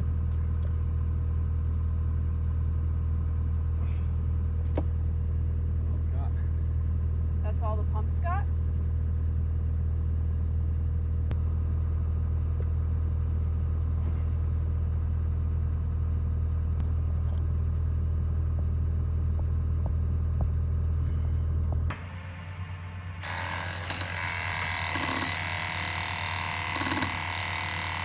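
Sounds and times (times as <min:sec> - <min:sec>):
excavator engine under load: 0:16.7 - 0:28.0.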